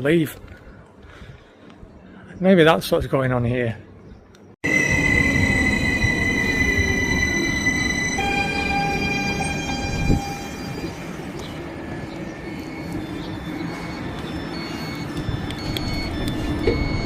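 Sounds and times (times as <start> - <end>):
electric train whine and rumble: 4.6 - 17.0.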